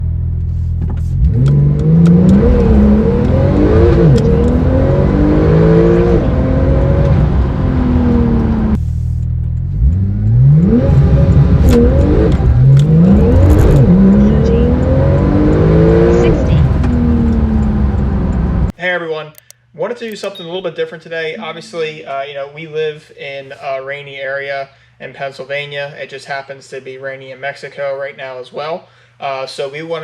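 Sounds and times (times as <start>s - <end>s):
sports car accelerating hard: 1.0s - 8.8s, 9.4s - 18.7s.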